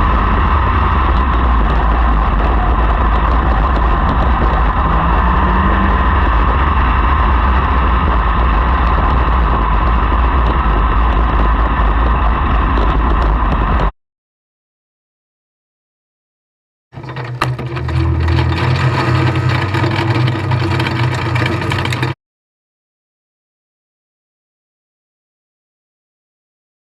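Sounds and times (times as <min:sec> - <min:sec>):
race car engines roaring: 0:00.0 - 0:13.8, 0:17.0 - 0:22.2.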